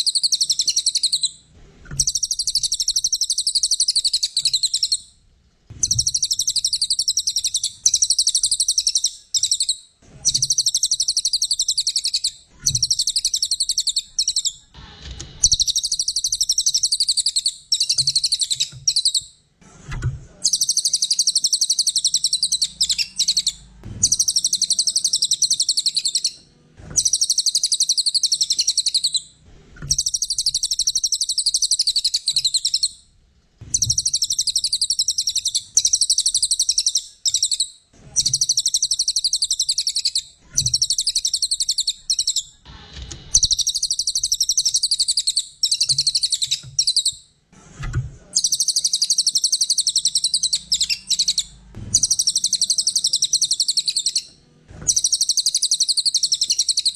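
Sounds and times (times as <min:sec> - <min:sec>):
songbird chattering song: 0:00.0 - 0:01.4, 0:02.0 - 0:05.1, 0:05.8 - 0:14.7, 0:15.4 - 0:19.3, 0:20.4 - 0:26.4, 0:27.0 - 0:29.3, 0:29.9 - 0:33.0, 0:33.7 - 0:42.6, 0:43.4 - 0:47.2, 0:48.4 - 0:54.3, 0:54.9 - 0:56.9.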